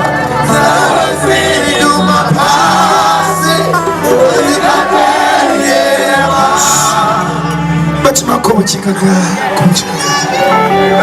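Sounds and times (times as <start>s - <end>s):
voices singing: 0.0s - 8.0s
band with bass line: 0.0s - 11.0s.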